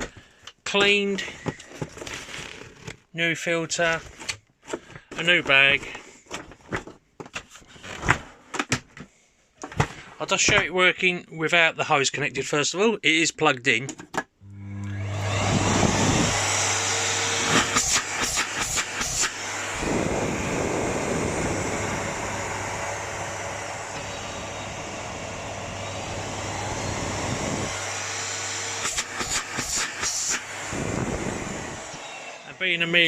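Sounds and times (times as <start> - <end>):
vacuum cleaner running: 14.4 - 33.0.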